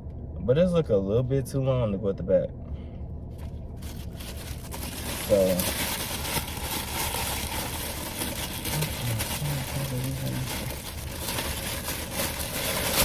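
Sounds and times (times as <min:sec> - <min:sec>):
car engine idling: 0:02.7 - 0:13.0.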